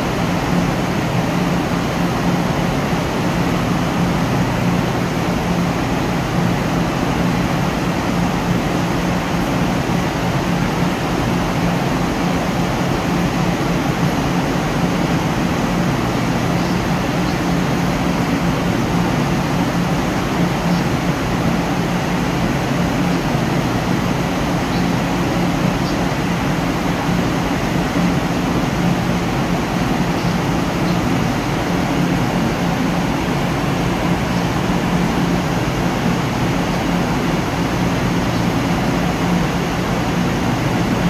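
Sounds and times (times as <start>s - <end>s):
train engine idling drone: 0.0s - 41.0s.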